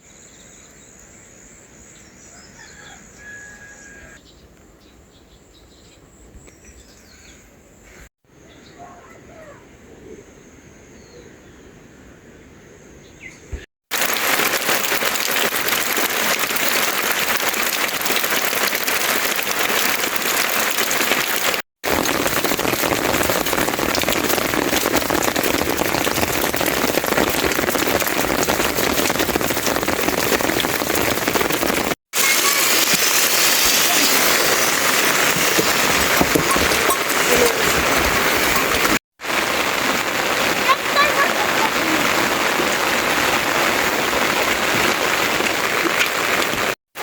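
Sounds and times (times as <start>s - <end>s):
heavy rain falling: 13.9s - 47.0s.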